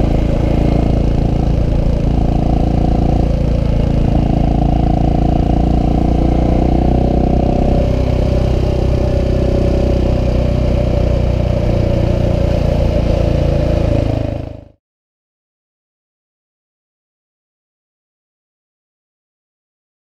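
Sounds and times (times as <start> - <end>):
motorcycle engine running at low revs: 0.0 - 14.8.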